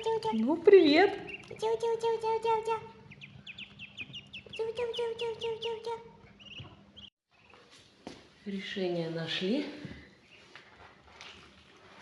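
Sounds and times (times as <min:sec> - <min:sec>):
ducklings peeping: 0:00.0 - 0:07.7.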